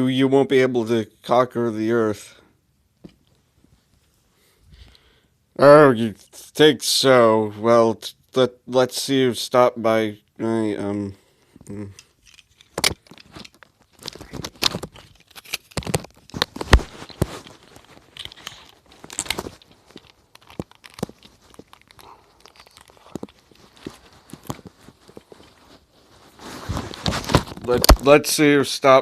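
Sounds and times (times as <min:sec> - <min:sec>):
rustling and crinkling: 0:11.2 - 0:28.4.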